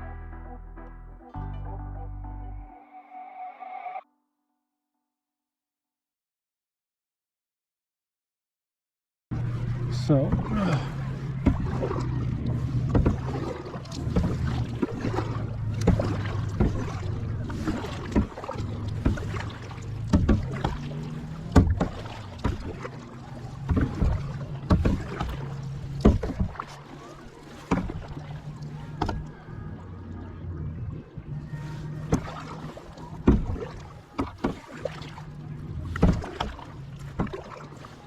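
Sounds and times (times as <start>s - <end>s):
kayak paddle strokes: 9.4s - 30.2s, 31.2s - 38.0s.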